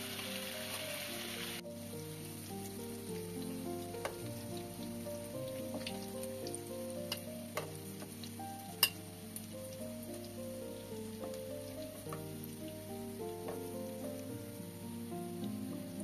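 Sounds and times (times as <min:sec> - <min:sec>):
patties sizzling in hot oil: 0:00.0 - 0:16.0
soft melody: 0:00.0 - 0:16.0
metal spoon clinking on pan: 0:07.1 - 0:07.7, 0:08.8 - 0:09.0.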